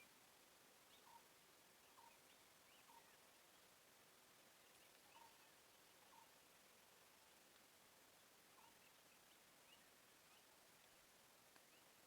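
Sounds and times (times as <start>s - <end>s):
faint high bird calls: 4.8s - 6.4s.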